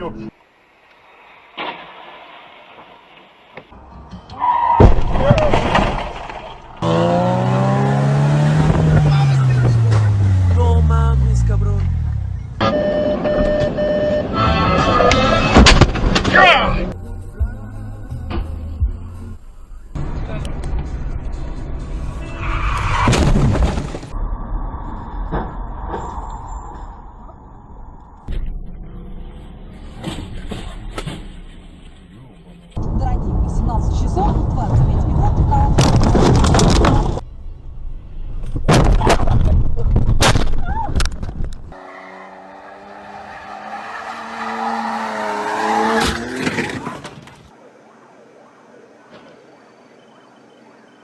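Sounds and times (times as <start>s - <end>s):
road rumble: 0.0s - 51.0s
car crash crunching: 1.3s - 6.9s, 14.7s - 16.5s, 22.5s - 27.7s, 35.7s - 37.2s, 38.5s - 47.5s.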